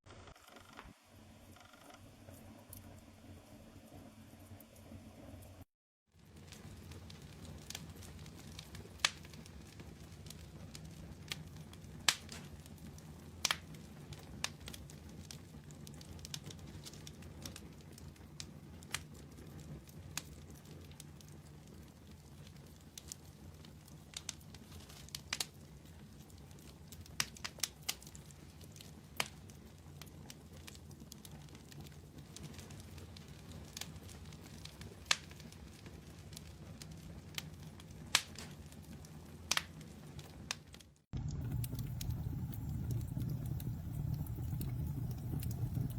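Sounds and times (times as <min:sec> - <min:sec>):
campfire low rumble: 0:06.2 - 0:27.2, 0:41.1 - 0:45.9
burning wood crackling and popping: 0:06.2 - 0:45.9.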